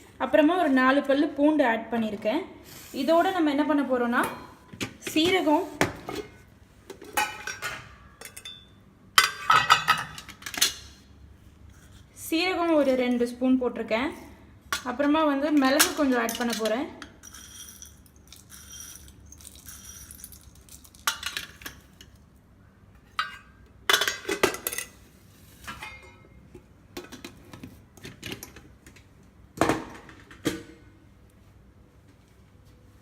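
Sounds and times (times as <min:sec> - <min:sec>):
spoon and metal kitchenware clinking: 0:07.1 - 0:10.8, 0:15.6 - 0:22.0.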